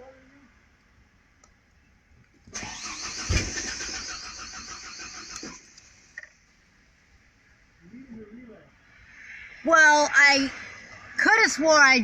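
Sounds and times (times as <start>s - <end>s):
starter motor cranking engine: 2.5s - 6.3s.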